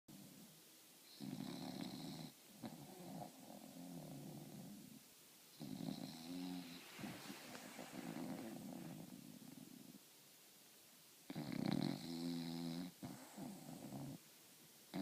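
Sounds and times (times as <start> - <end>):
dog snoring with whistle: 1.1 - 4.9, 5.5 - 9.8, 11.3 - 14.2.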